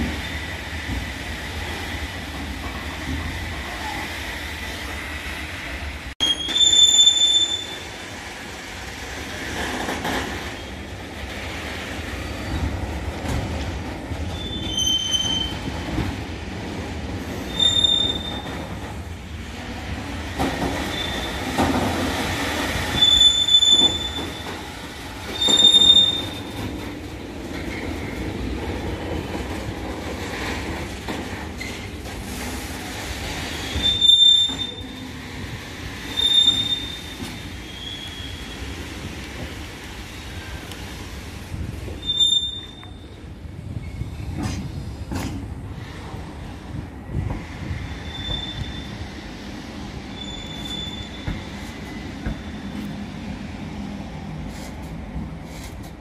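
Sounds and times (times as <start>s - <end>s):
train rumbling over rails: 0.0s - 56.0s
wheels squealing: 17.4s - 18.7s, 20.8s - 21.8s, 22.9s - 24.6s, 25.3s - 26.7s, 42.0s - 43.0s, 47.8s - 49.1s, 50.2s - 52.4s.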